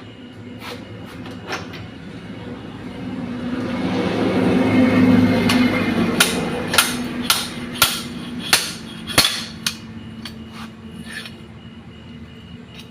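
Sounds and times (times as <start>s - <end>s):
steady machine hum: 0.0s - 12.9s
hammer striking metal: 5.4s - 10.4s.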